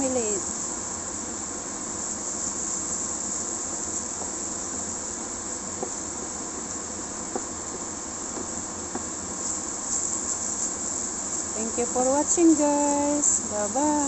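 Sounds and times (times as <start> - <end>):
food sizzling in a frying pan: 0.0 - 14.0
spatula stirring and tapping pan: 3.9 - 5.0, 5.7 - 10.8.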